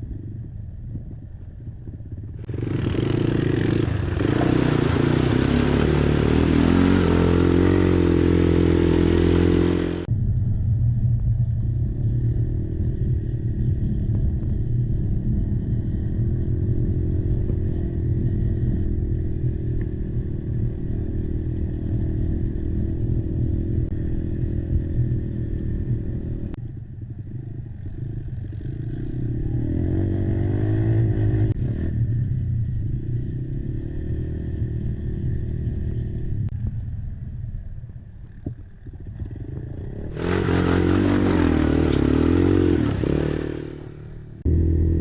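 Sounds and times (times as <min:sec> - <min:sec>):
quad engine revving: 0:02.5 - 0:10.1, 0:28.0 - 0:32.0, 0:39.2 - 0:45.0.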